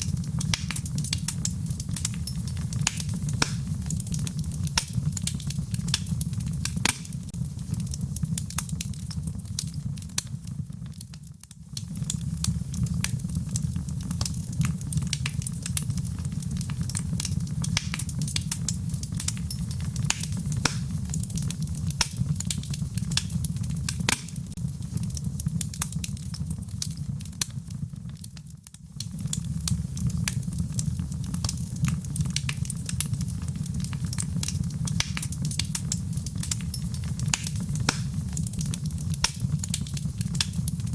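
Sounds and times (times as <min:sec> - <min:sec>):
campfire crackling and popping: 0:00.0 - 0:40.9
low fire rumble: 0:00.0 - 0:40.9.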